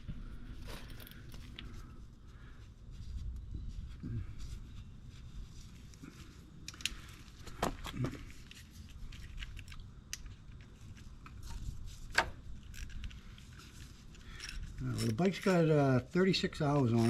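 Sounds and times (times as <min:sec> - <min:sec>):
tools and metal parts clicking: 0:12.5 - 0:15.8.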